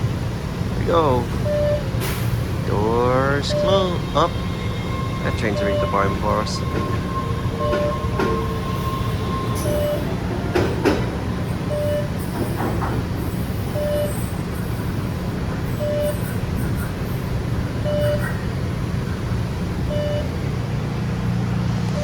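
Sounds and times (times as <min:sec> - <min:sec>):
subway train rumbling: 0:00.0 - 0:22.0
short beeps: 0:01.4 - 0:01.9, 0:03.4 - 0:04.6, 0:05.2 - 0:10.1, 0:11.7 - 0:12.2, 0:13.8 - 0:14.4, 0:15.8 - 0:16.4, 0:17.8 - 0:18.4, 0:19.9 - 0:20.3.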